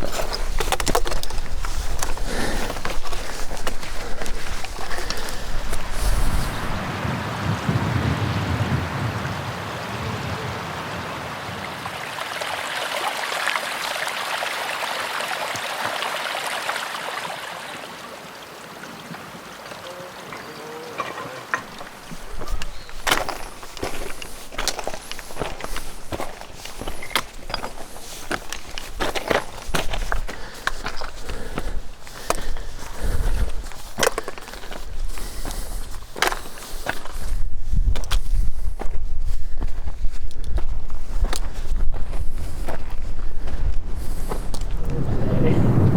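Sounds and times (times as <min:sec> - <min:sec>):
footsteps on a trail: 0:00.0 - 0:06.9, 0:21.5 - 0:45.0
wind rumble on microphone: 0:03.3 - 0:11.2, 0:31.4 - 0:33.8, 0:37.0 - 0:45.9
stream splashing over rocks: 0:10.7 - 0:37.2
low rumble: 0:44.5 - 0:45.9.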